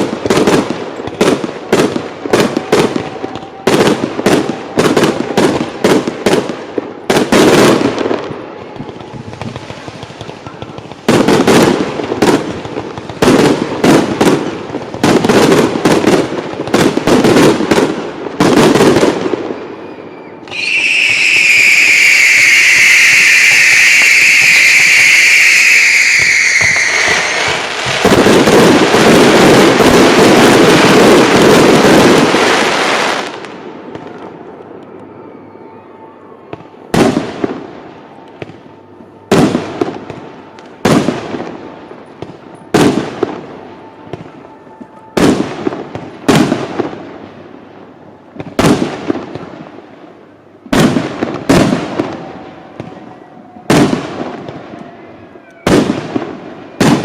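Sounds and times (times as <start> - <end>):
fireworks barrage: 0.0 - 35.4, 36.4 - 57.0
sharp firework bangs echoing: 20.5 - 34.1.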